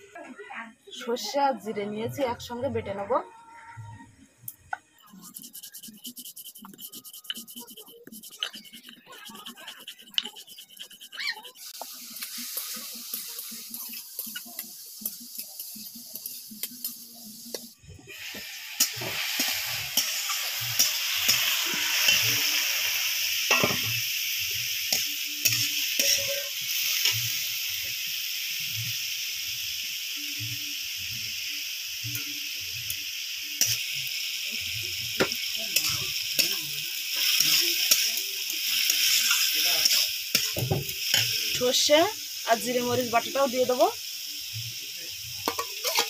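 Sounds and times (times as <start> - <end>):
vegetable sizzling in a pan: 4.4 - 46.0
metal spatula scraping pan: 5.1 - 11.8, 18.3 - 22.6, 23.5 - 24.0, 25.0 - 27.2, 45.4 - 46.0.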